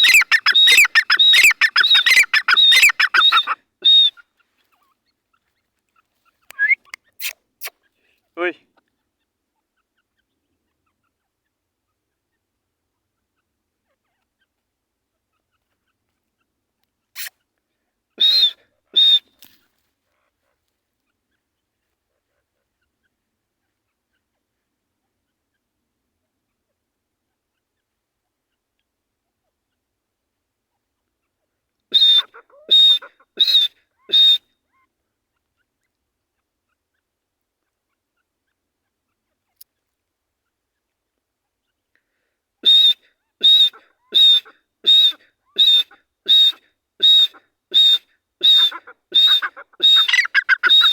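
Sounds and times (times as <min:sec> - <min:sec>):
francolin calling shrill notes: 0:00.0 - 0:04.1, 0:46.4 - 0:50.9.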